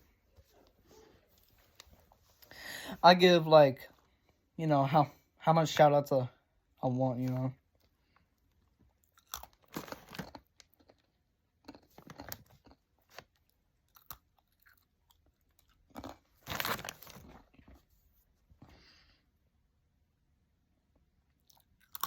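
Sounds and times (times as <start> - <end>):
chewing crunchy pretzels: 7.8 - 17.8, 21.3 - 22.0.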